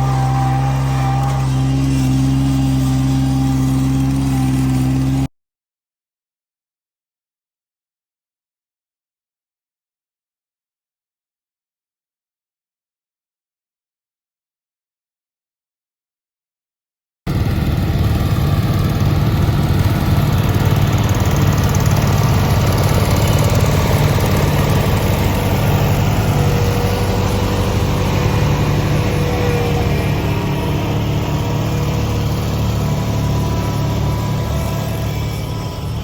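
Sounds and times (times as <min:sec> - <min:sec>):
small tractor engine running: 0:00.0 - 0:05.3, 0:17.3 - 0:36.0.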